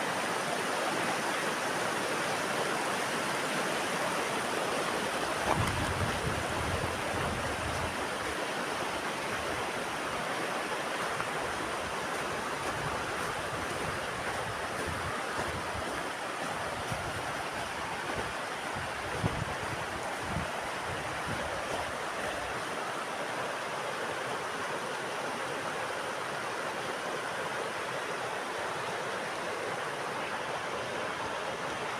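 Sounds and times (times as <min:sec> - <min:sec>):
mountain river rushing: 0:00.0 - 0:31.9
wind buffeting microphone: 0:05.4 - 0:08.4, 0:12.6 - 0:22.0.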